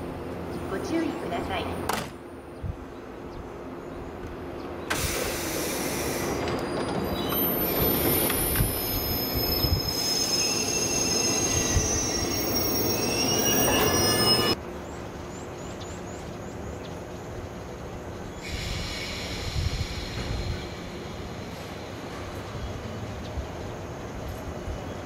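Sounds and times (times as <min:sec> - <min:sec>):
electric train pulling in: 0:03.6 - 0:25.0
high-pitched wheel and brake squeals: 0:05.9 - 0:14.6.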